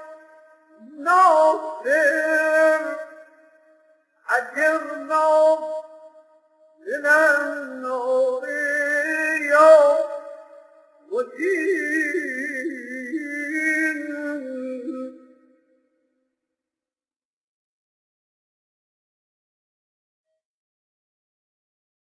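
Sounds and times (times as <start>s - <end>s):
man chanting melodically: 0.0s - 3.4s, 4.3s - 5.8s, 6.8s - 10.5s.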